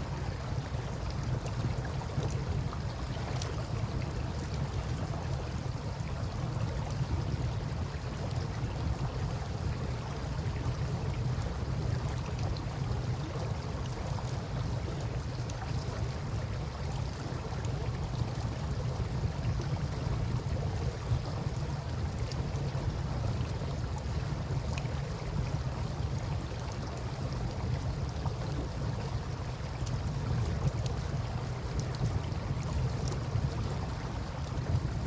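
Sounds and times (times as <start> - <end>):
campfire crackling and popping: 31.7 - 33.6.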